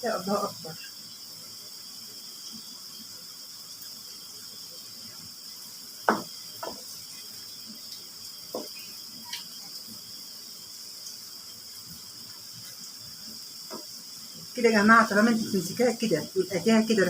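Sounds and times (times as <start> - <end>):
liver frying in a pan: 0.0 - 17.0
utensil knocking against pan: 6.0 - 6.8.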